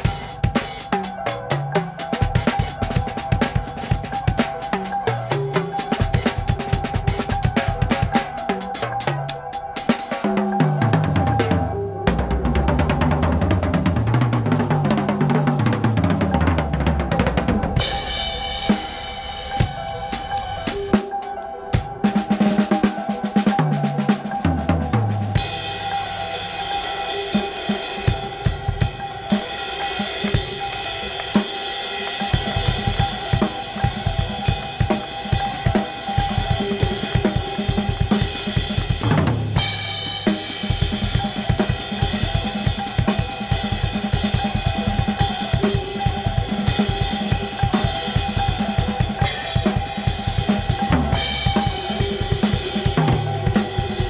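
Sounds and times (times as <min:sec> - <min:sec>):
drum kit played fast: 0:00.0 - 0:54.0
held drone tones: 0:16.0 - 0:54.0
rising sweep: 0:16.8 - 0:21.7.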